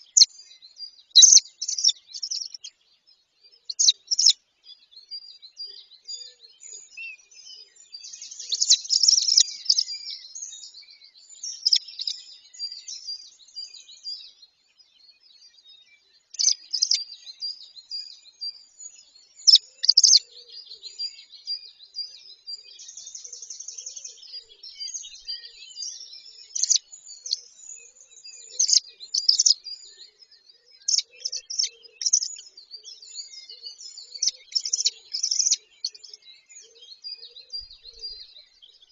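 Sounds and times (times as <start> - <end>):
bird trill: 0.0 - 2.8, 3.5 - 4.4, 5.2 - 14.4, 15.4 - 38.9
birds chirping: 0.0 - 38.9.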